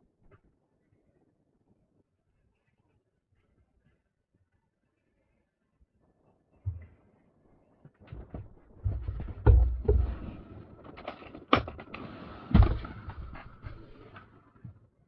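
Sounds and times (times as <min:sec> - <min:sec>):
knocks clicks and thumps: 0:08.1 - 0:14.0.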